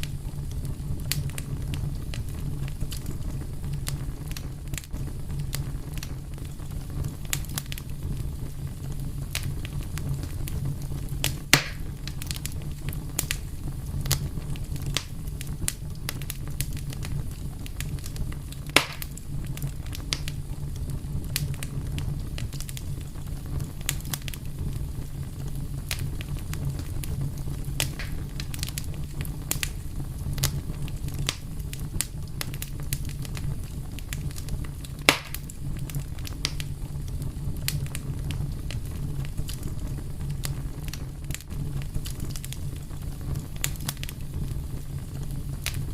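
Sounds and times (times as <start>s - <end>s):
fire crackling: 0.0s - 45.9s
fire popping: 0.0s - 45.9s.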